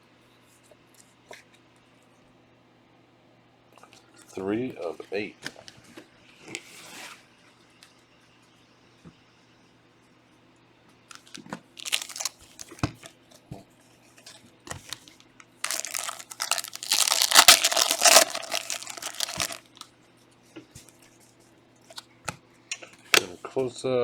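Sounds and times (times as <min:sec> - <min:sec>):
plastic wrapper tearing and crinkling: 0:11.1 - 0:12.9, 0:14.8 - 0:19.8.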